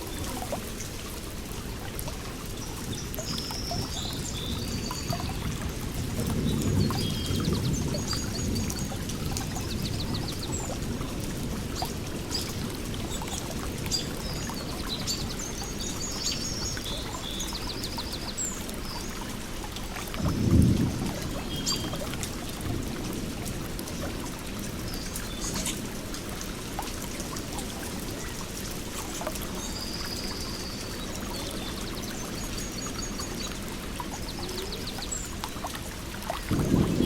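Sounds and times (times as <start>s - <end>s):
water pouring and trickling: 0.0s - 37.0s
small birds chirping and trilling: 1.9s - 19.4s, 27.1s - 37.0s.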